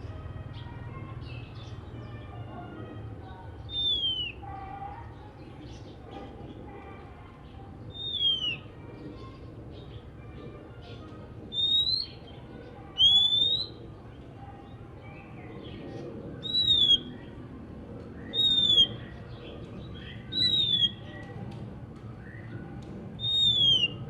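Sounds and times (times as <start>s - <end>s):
bird chattering notes: 3.7s - 4.4s
bird whistling loud notes: 3.7s - 4.4s, 7.9s - 8.6s, 11.5s - 12.2s, 16.4s - 17.1s, 18.3s - 19.0s, 20.3s - 21.0s, 23.2s - 24.0s.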